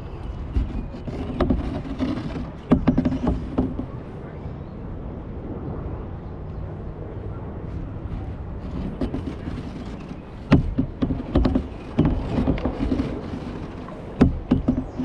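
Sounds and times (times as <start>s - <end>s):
sharp knocks against kayak: 0.5s - 4.0s, 8.7s - 15.0s
paddle splashes: 8.6s - 15.0s.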